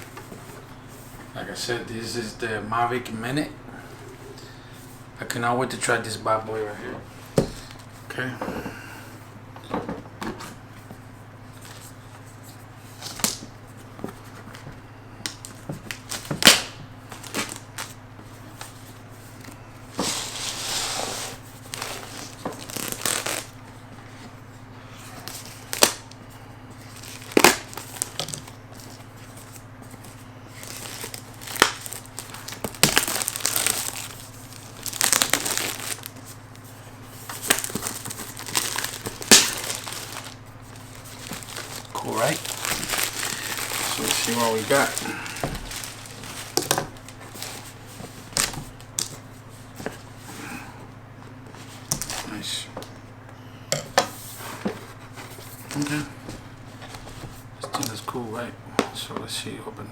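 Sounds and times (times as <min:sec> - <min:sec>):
steady low hum: 0:00.0 - 0:59.9
plastic crinkling and tearing: 0:15.3 - 0:18.0, 0:21.6 - 0:23.6, 0:25.2 - 0:26.2, 0:26.8 - 0:36.5, 0:37.3 - 0:49.2, 0:55.6 - 0:56.2.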